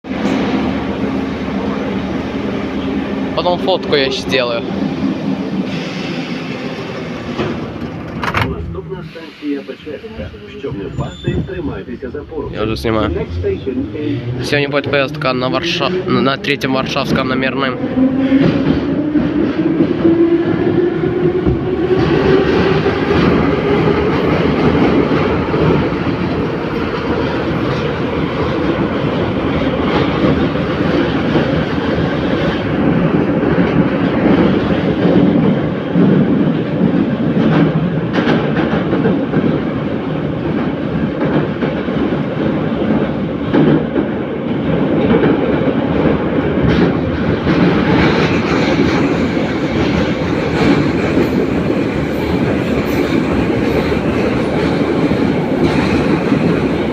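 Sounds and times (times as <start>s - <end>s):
metro train wheels rumbling on rail: 0.0s - 56.9s
rail-joint clicks: 5.7s - 11.9s, 21.4s - 56.9s.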